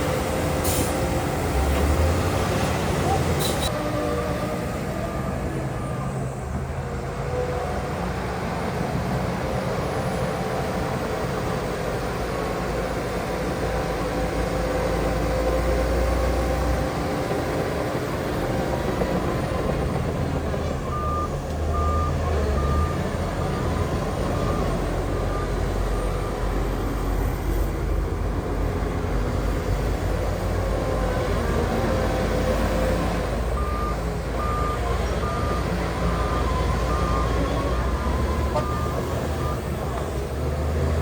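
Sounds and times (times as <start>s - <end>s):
heavy machinery diesel engine: 0.0s - 41.0s
reversing alarm beeping: 20.9s - 26.5s, 33.6s - 39.7s.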